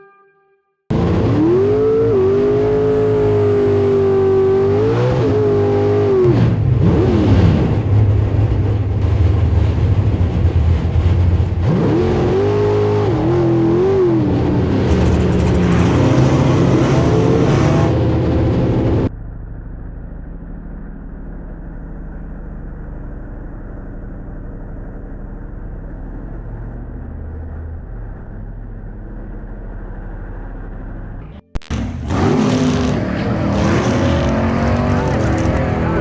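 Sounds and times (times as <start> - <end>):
car engine revving hard: 0.9 - 19.1, 31.7 - 36.0.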